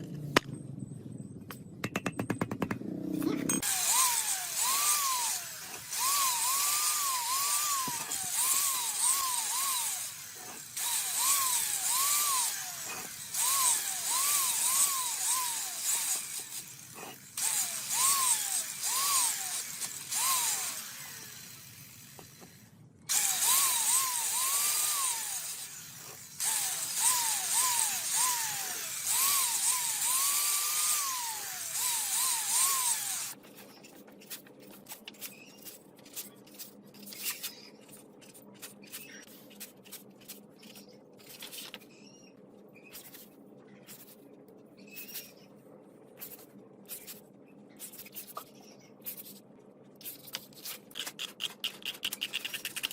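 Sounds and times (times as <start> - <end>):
power tool hissing and whining: 3.6 - 33.4.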